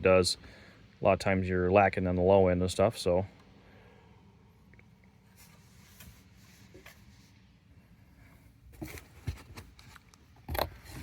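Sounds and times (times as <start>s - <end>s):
light handling rustling: 8.7s - 11.0s.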